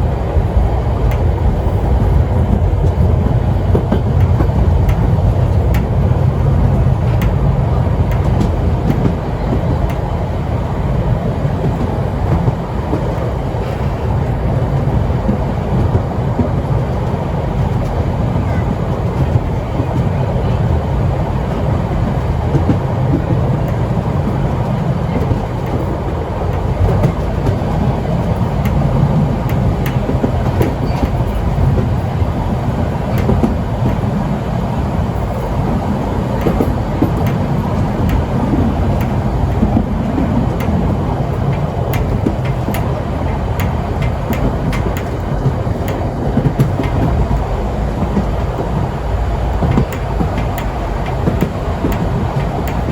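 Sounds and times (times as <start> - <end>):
steam train rumbling: 0.0 - 52.9
wheels clicking over rails: 0.0 - 52.9.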